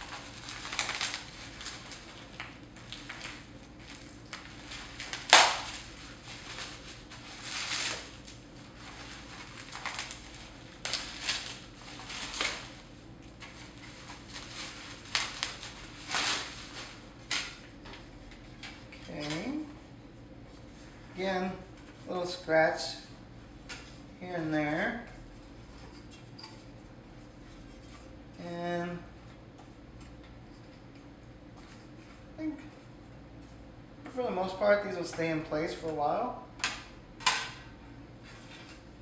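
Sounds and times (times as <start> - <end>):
packaging crinkling: 0.0 - 17.7.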